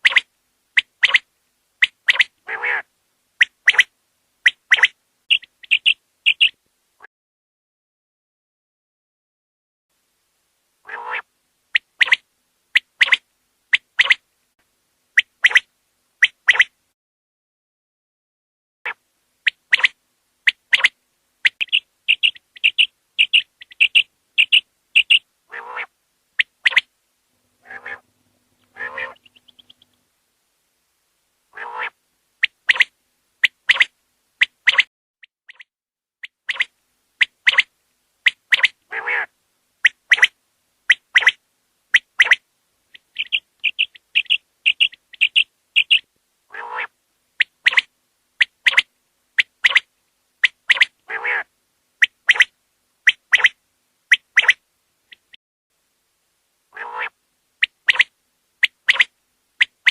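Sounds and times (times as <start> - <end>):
quail calling: 0.0 - 1.2, 1.8 - 6.6, 10.8 - 12.2, 12.8 - 14.2, 19.5 - 26.9, 27.6 - 30.0, 31.5 - 33.9, 35.5 - 40.3, 40.9 - 49.9, 50.7 - 52.5, 53.1 - 55.4, 56.7 - 59.9.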